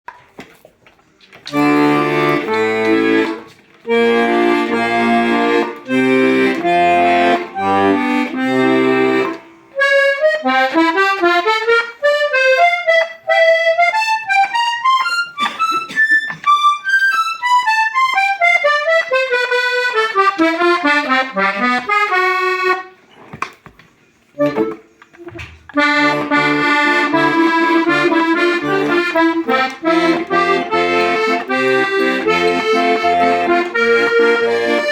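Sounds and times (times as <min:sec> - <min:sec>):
accordion playing: 0:01.5 - 0:23.0, 0:24.2 - 0:34.9.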